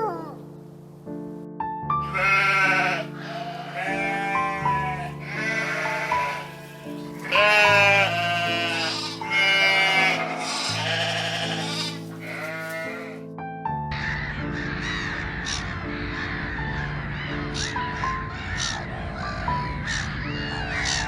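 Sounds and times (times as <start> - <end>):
background music with sustained chords: 0.0 - 21.0
sheep bleating: 2.0 - 13.2.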